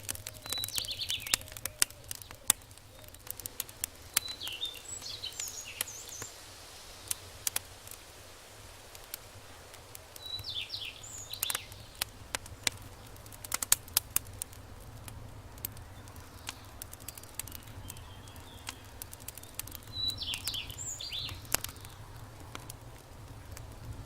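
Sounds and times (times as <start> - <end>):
bird chirps: 0.0 - 3.5, 4.1 - 6.4, 10.2 - 12.0, 15.8 - 22.0
campfire crackling and popping: 0.0 - 24.0.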